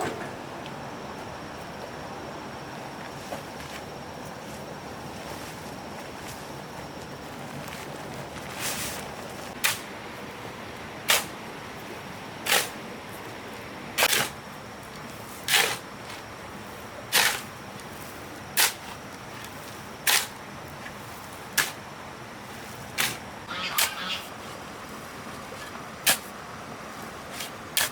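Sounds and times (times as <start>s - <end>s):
hand tool scraping cement mix: 27.4s - 27.9s.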